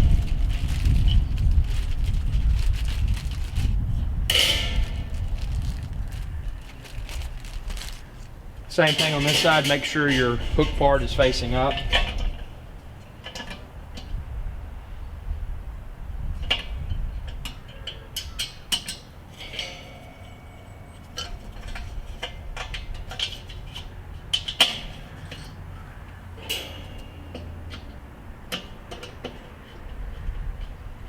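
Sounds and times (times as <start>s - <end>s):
metal parts clinking on grill: 8.7s - 12.4s, 18.2s - 25.6s, 26.4s - 27.5s
ringing metal knocks: 18.4s - 23.8s, 26.4s - 29.3s.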